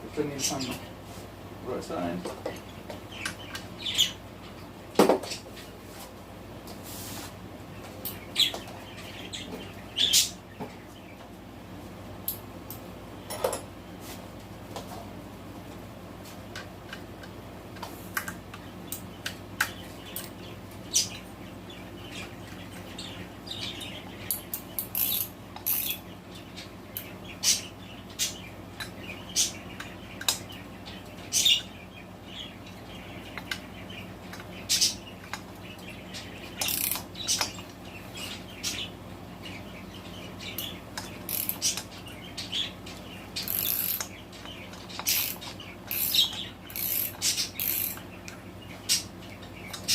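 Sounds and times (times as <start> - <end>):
budgies chirping: 1.7 - 4.6, 7.7 - 11.3, 18.6 - 49.9
ratchet wrench clicking: 24.8 - 26.0, 36.6 - 37.0, 41.3 - 41.6, 43.4 - 44.0, 45.1 - 48.0.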